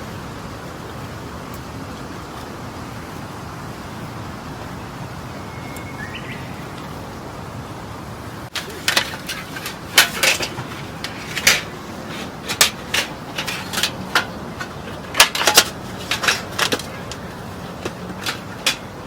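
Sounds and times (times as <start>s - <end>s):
faint steady hiss: 0.0s - 19.0s
sharp clicks and light knocks: 8.5s - 19.0s.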